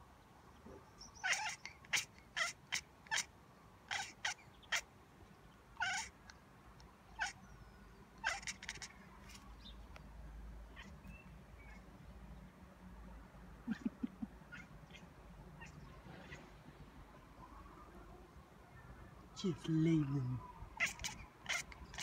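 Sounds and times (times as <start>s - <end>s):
cat chirping meows: 1.2s - 3.3s, 3.9s - 4.9s, 5.8s - 6.2s, 7.1s - 7.5s, 8.2s - 9.4s, 10.7s - 11.8s, 14.5s - 16.5s, 20.6s - 22.0s.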